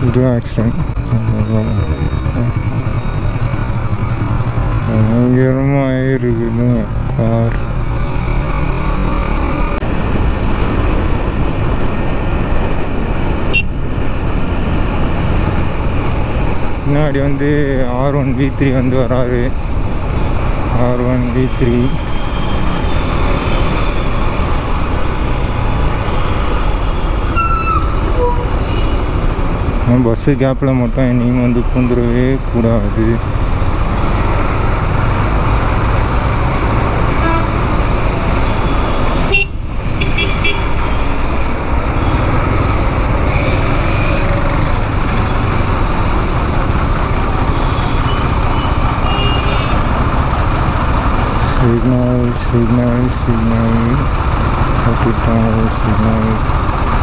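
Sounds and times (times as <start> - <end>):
motorcycle riding roar: 0.0 - 57.0
traffic: 0.0 - 57.0
wind and road noise: 0.0 - 57.0
motorcycle engine running: 0.9 - 10.5
brief high tone: 1.0 - 4.0.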